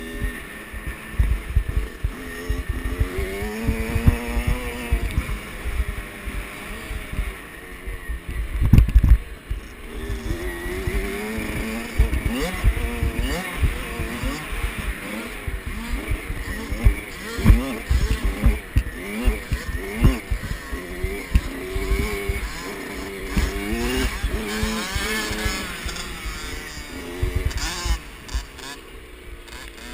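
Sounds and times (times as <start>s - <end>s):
dirt bike engine revving: 0.0s - 29.9s
low thumps: 0.2s - 7.3s.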